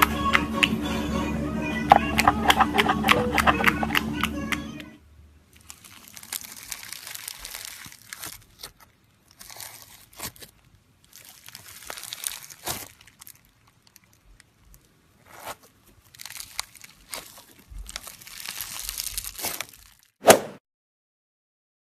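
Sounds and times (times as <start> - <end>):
slime crackling and popping: 5.5 - 20.2.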